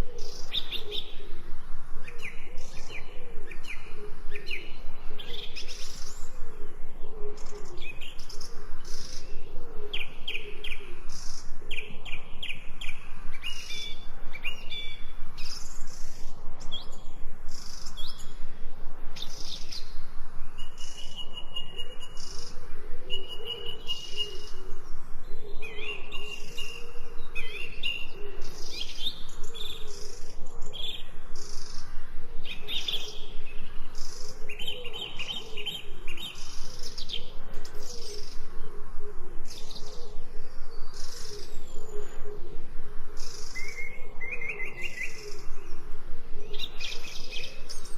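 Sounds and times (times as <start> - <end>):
many birds chirping: 0.0 - 47.9
whistled bird notes: 19.2 - 31.1.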